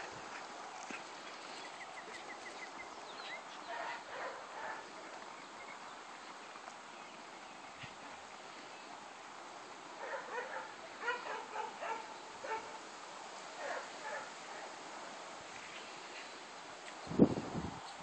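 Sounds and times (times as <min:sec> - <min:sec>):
bird singing: 0:01.2 - 0:09.0.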